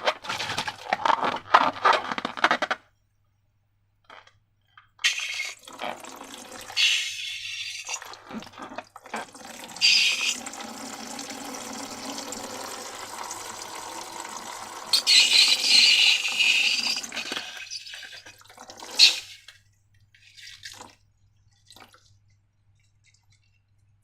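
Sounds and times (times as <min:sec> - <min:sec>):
liquid pouring into container: 0:05.0 - 0:24.0.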